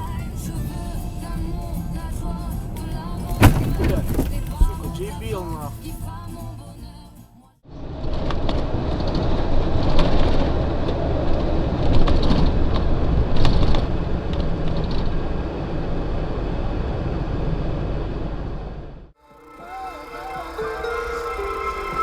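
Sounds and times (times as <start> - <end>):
vehicle road and engine noise: 0.0 - 6.5, 7.7 - 19.2
sharp knocks: 3.3 - 4.8.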